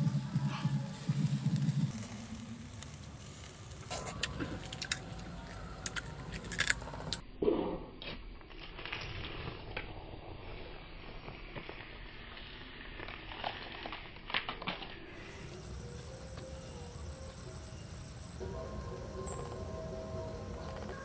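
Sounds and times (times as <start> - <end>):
crispy food crunching: 1.9 - 7.2
chewing with wet squishing: 3.8 - 7.2.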